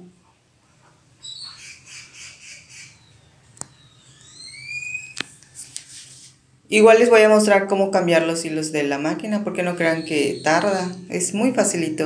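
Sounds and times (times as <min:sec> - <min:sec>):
bird squawking and chirping: 0:01.2 - 0:05.2, 0:09.6 - 0:11.1.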